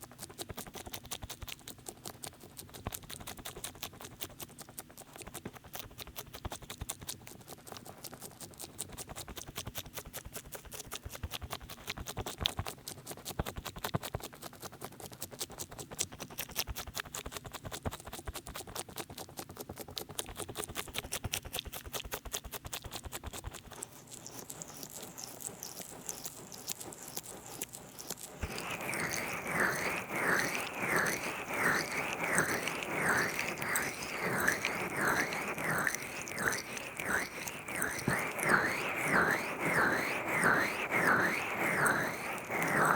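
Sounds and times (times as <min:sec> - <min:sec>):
rhythmic rubbing strokes: 0:23.8 - 0:42.9.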